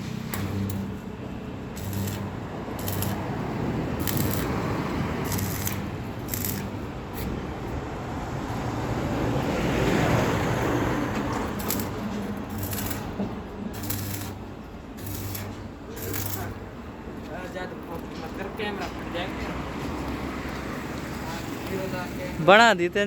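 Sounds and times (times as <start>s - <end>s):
welding machine hum: 0.0s - 7.7s, 11.2s - 17.0s
arc welding crackling hiss: 1.7s - 6.9s, 11.5s - 16.7s.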